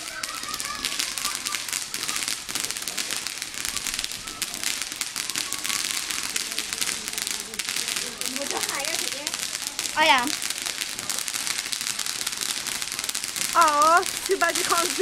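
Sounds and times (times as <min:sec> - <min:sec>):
firework crackling: 0:00.0 - 0:15.0.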